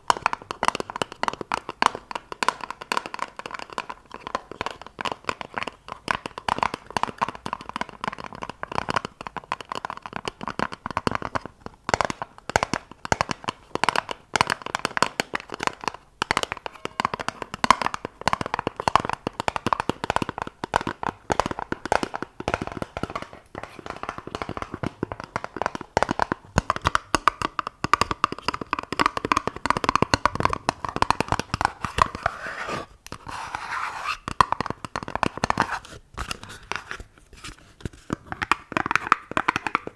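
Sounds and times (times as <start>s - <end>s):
rapid fingertip tapping: 0.0s - 35.9s, 38.1s - 39.9s.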